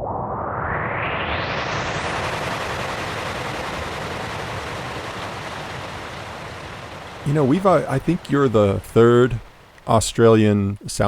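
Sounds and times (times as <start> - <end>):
static-like hiss with crackling: 2.2 - 11.0.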